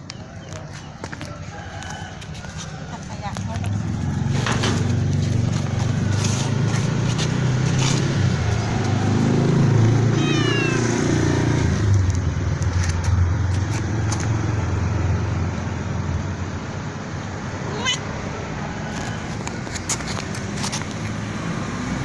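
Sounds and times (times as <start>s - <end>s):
cat meowing: 10.0s - 11.2s, 17.7s - 18.1s.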